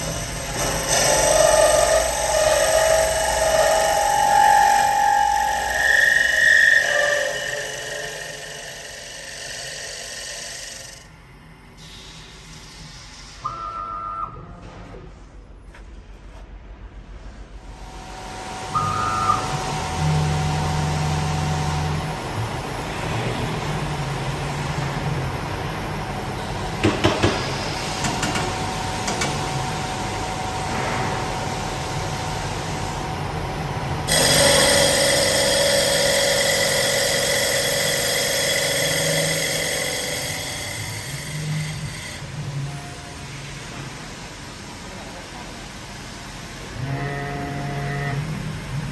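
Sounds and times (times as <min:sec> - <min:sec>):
wood lathe running: 0:00.0 - 0:11.0, 0:34.1 - 0:42.3
high-pitched ringing cut: 0:00.0 - 0:11.1, 0:34.1 - 0:43.2.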